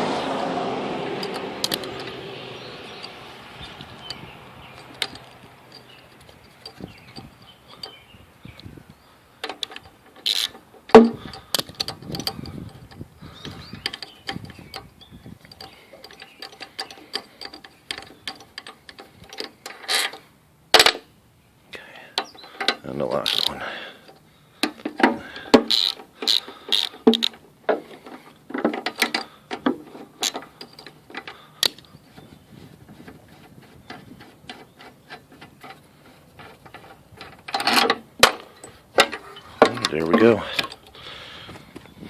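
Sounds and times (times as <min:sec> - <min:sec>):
ratchet wrench clicking: 0:01.2 - 0:02.2, 0:09.5 - 0:10.6, 0:22.6 - 0:23.5, 0:25.7 - 0:27.3.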